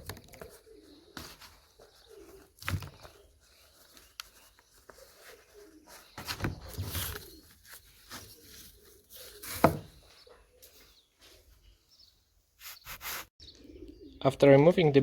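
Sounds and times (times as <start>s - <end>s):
wooden knocks clatter and scraping: 9.4s - 10.0s.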